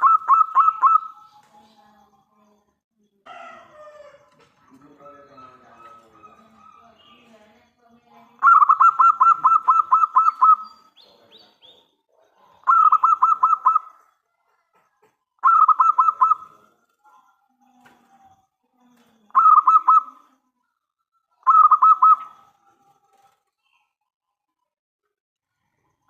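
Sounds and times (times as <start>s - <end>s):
dove cooing: 0.0s - 1.3s, 4.8s - 7.2s, 8.4s - 10.7s, 12.6s - 14.1s, 15.4s - 16.8s, 19.2s - 20.3s, 21.4s - 23.3s.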